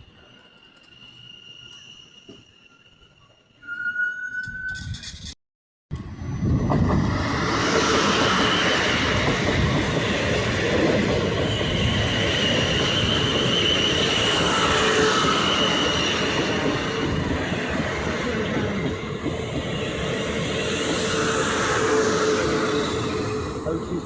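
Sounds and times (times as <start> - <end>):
train wheels on track: 0.0 - 3.7, 5.9 - 24.0
high wheel squeal: 0.0 - 5.4, 11.4 - 24.0.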